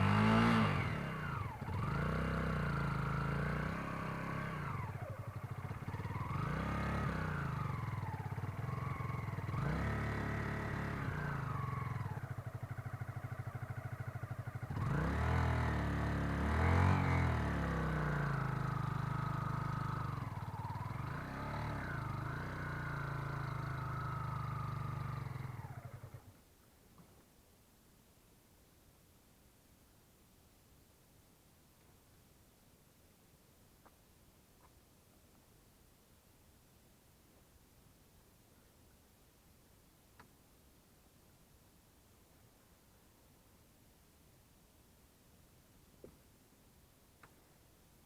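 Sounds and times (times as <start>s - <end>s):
motorcycle engine revving: 0.0s - 26.3s.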